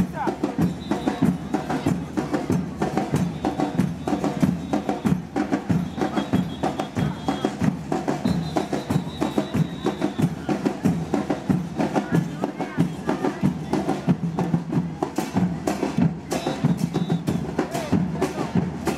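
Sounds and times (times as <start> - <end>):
fast street band drumming: 0.0 - 18.9.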